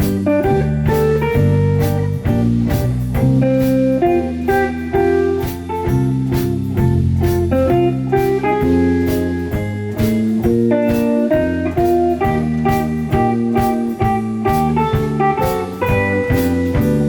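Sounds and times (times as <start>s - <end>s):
band music with guitar: 0.0s - 17.0s
bass line: 0.0s - 17.0s
regular drum beat: 0.0s - 17.0s.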